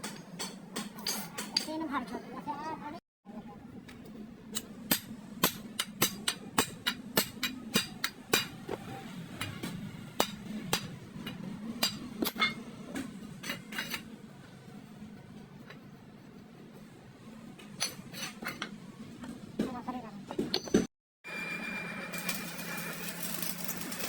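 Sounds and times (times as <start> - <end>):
hammer striking steel: 4.6 - 8.6, 9.4 - 12.6.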